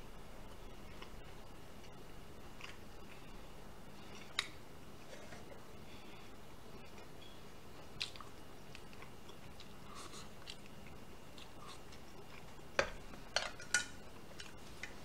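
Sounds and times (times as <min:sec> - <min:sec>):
chewing: 0:01.8 - 0:03.4, 0:08.0 - 0:12.6.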